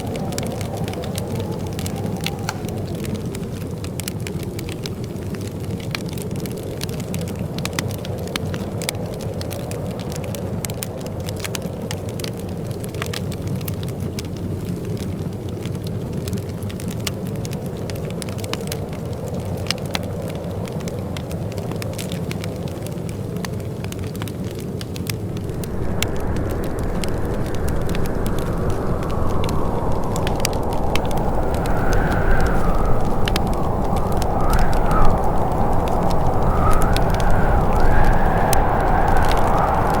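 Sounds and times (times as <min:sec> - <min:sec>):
fireplace crackling: 0:25.2 - 0:40.0.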